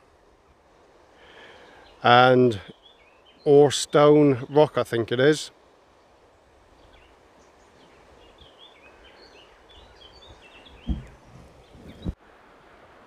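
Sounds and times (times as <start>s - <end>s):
bird chirping: 6.6s - 12.2s
low thump on microphone: 10.8s - 12.2s.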